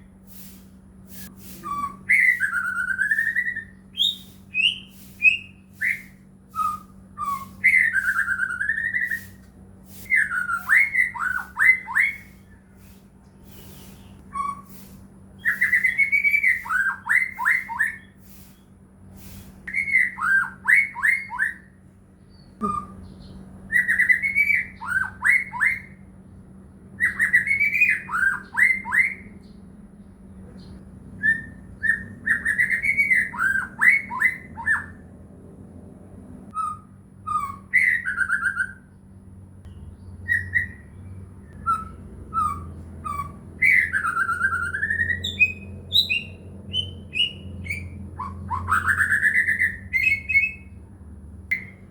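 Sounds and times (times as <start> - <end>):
faint low hum: 0.0 - 51.9
songbird singing whistled phrase: 1.6 - 9.4, 10.1 - 12.6, 13.5 - 14.8, 15.4 - 18.2, 19.7 - 21.7, 22.3 - 26.0, 30.6 - 35.0, 36.5 - 38.9, 40.1 - 50.8, 51.5 - 51.9.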